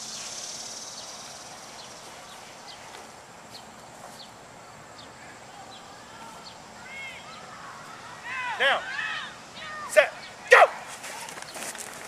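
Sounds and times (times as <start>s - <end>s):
small bird chirping: 0.0s - 4.4s
outdoor background hiss: 0.0s - 12.0s.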